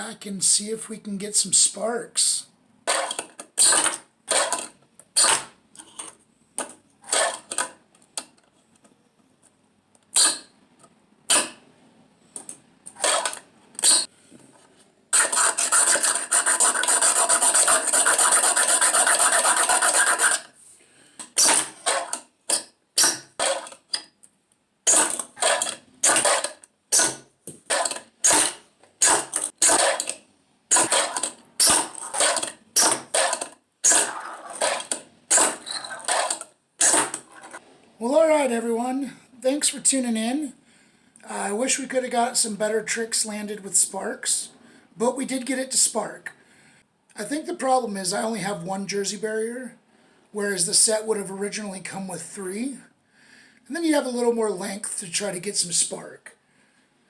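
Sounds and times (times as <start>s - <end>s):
fingerboard clacks and scrapes: 15.2s - 20.5s, 24.9s - 37.6s.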